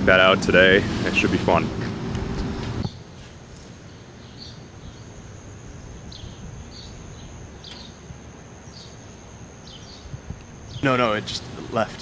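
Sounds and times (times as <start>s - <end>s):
small birds chirping: 2.8s - 12.0s.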